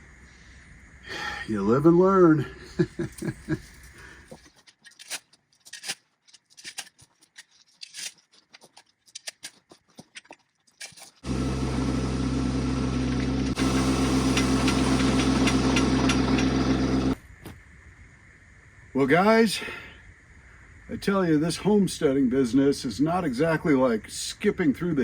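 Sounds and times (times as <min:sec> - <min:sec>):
tractor engine running: 0:11.2 - 0:17.2.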